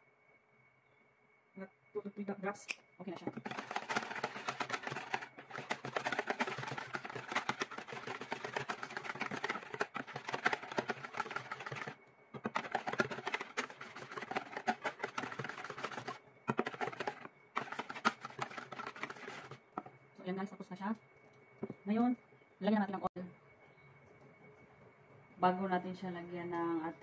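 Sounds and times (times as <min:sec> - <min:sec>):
whisk beating batter in bowl: 0:03.3 - 0:19.9.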